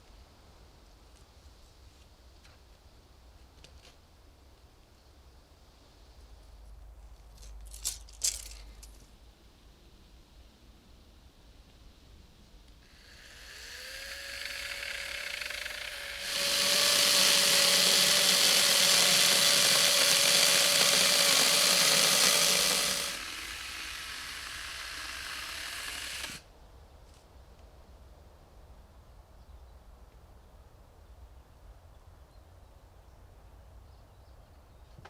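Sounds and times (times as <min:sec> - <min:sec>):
power tool motor running: 0:12.8 - 0:26.4.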